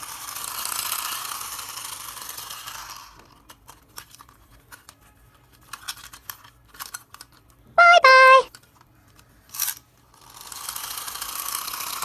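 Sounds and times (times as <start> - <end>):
small clicks and rattles: 0.6 - 7.6.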